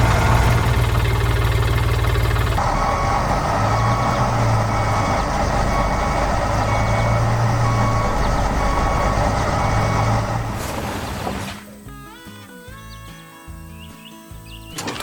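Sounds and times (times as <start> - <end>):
diesel engine running: 0.0 - 11.8, 14.8 - 15.0
reversing alarm beeping: 2.6 - 10.6.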